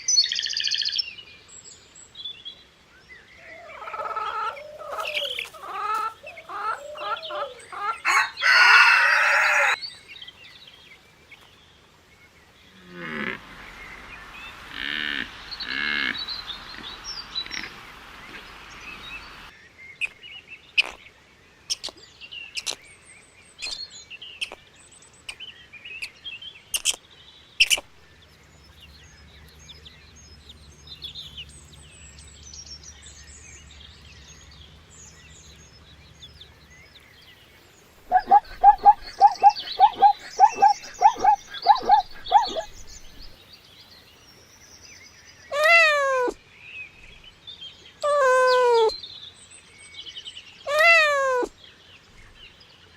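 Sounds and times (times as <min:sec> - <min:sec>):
poultry calling and chirping: 0:03.4 - 0:09.8, 0:12.8 - 0:20.2, 0:38.0 - 0:43.4, 0:45.5 - 0:46.4, 0:48.0 - 0:49.0, 0:50.7 - 0:51.6
low hum: 0:12.8 - 0:19.5, 0:28.0 - 0:43.4.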